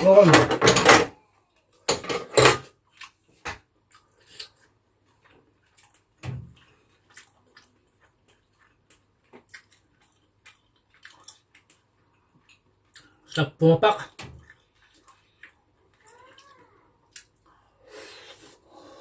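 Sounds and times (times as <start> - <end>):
person chewing chicken: 2.7 - 13.4, 14.4 - 19.0.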